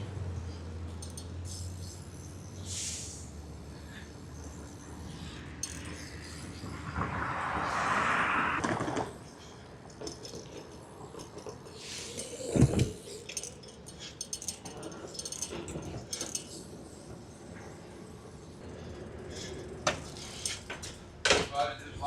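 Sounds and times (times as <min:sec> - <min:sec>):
light metallic clinks: 0:00.4 - 0:02.5, 0:03.7 - 0:06.7, 0:09.2 - 0:21.0.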